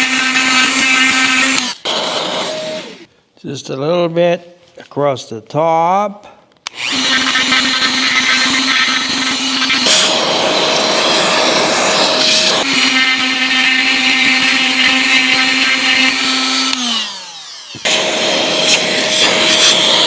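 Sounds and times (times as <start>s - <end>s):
rotary tool grinding: 6.7s - 17.9s.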